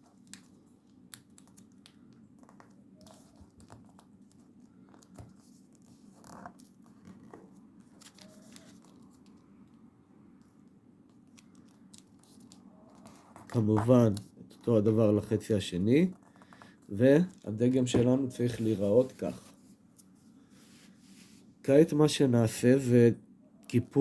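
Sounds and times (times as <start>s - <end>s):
paper rustling and crinkling: 0.1s - 9.7s, 11.0s - 15.4s, 16.1s - 21.4s
soft paper ticks: 0.1s - 15.0s.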